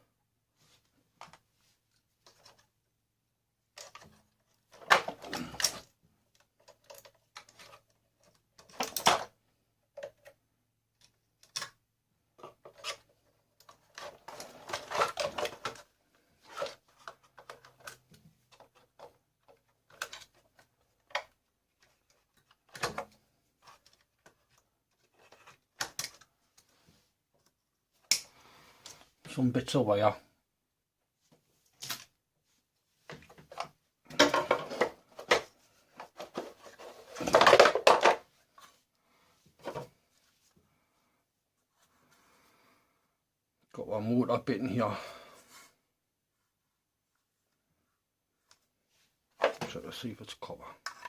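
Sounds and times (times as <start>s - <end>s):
vacuum cleaner parts clicking and rattling: 3.8s - 10.4s, 12.4s - 26.3s, 33.1s - 38.6s, 49.4s - 49.8s, 50.8s - 51.0s.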